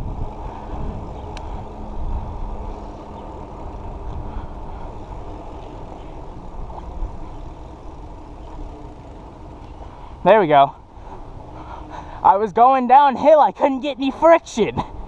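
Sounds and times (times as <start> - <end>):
wind buffeting microphone: 0.0 - 13.2
bike tyres road rumble: 0.0 - 15.0.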